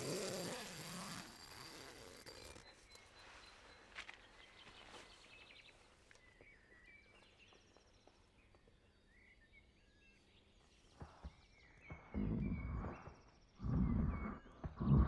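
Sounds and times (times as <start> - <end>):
bird chirps and trills: 8.9 - 15.0.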